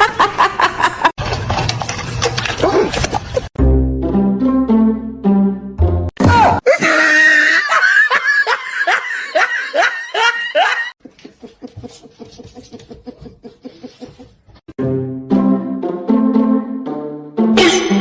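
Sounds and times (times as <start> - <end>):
person laughing hard: 6.6 - 14.3.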